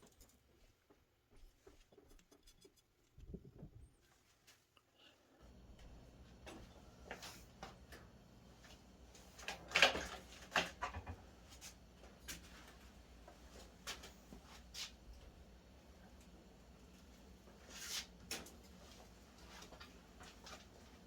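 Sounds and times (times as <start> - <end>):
low steady hum: 5.0 - 17.6.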